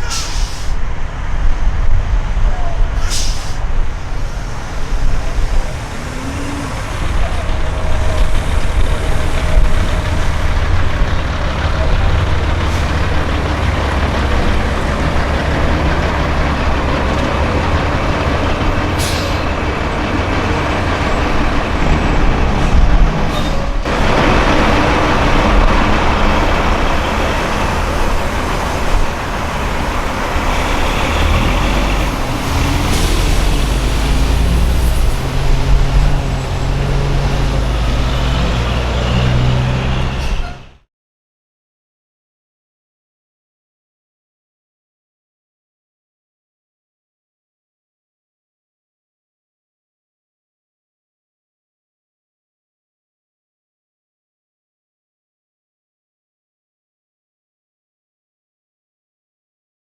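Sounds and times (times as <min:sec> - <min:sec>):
air hiss: 0:00.0 - 0:00.8, 0:03.0 - 0:03.7
broad rush of noise: 0:00.0 - 0:37.9
diesel trucks driving by: 0:00.0 - 0:40.9.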